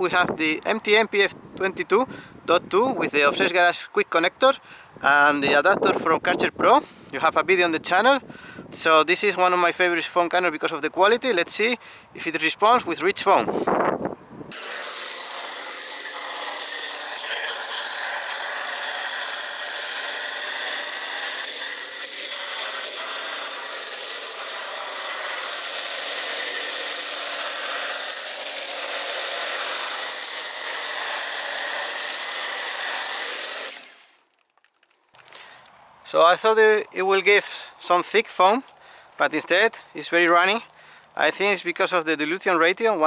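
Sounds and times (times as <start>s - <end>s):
foam jet hissing: 14.5s - 34.2s
pressure washer humming: 14.5s - 34.2s.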